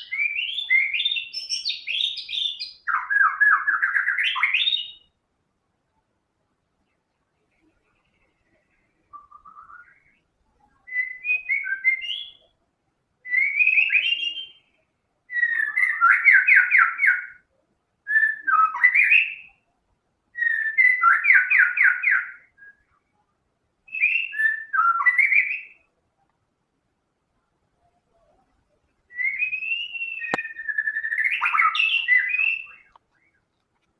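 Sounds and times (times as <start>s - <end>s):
bird singing whistled phrases: 0.0s - 5.2s, 9.0s - 10.2s, 10.8s - 12.5s, 13.2s - 17.5s, 18.1s - 19.6s, 20.4s - 23.0s, 23.9s - 25.9s, 29.1s - 33.4s.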